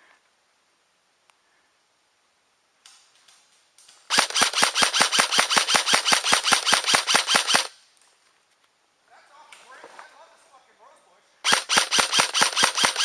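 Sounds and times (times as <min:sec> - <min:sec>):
airsoft gun rapid firing: 0:04.1 - 0:07.7, 0:11.4 - 0:13.0.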